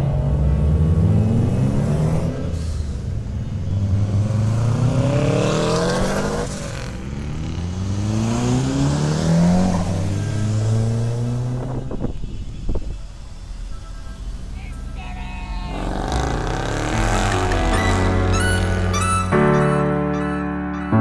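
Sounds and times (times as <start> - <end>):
engine running low: 0.0 - 19.7
car engine revving hard: 3.6 - 12.1, 15.7 - 19.2.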